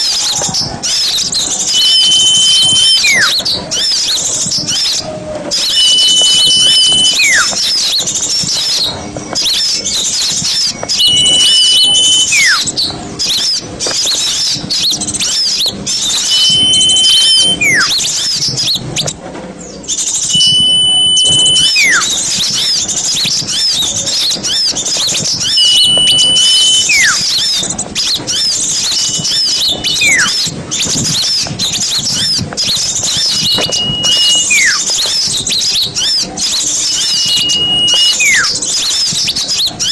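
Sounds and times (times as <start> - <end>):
flock of birds chirping: 0.0 - 39.9
bird whistle sliding down: 1.4 - 3.4, 4.8 - 7.9, 10.4 - 12.7, 15.9 - 19.1, 20.0 - 23.6, 24.5 - 39.2
bird whistle holding one note: 1.4 - 3.6, 5.5 - 8.0, 10.4 - 12.7, 16.0 - 18.4, 20.0 - 23.7, 24.5 - 27.7, 28.3 - 39.2.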